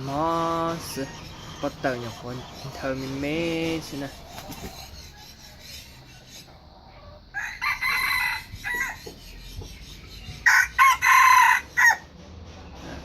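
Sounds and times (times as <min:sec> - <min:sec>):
rooster crowing: 0:07.0 - 0:09.1, 0:10.4 - 0:12.1.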